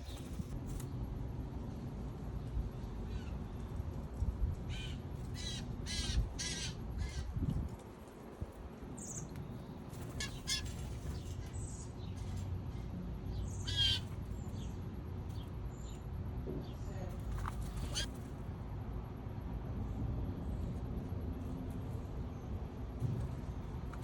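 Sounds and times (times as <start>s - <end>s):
bird harsh raspy calls: 4.7s - 7.3s, 10.2s - 11.3s, 13.4s - 14.7s, 17.7s - 18.1s.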